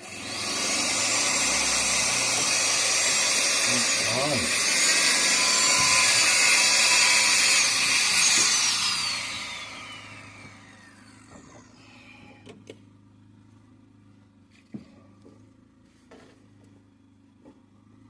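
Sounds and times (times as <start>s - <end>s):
small high-speed motor whining: 0.0s - 12.8s.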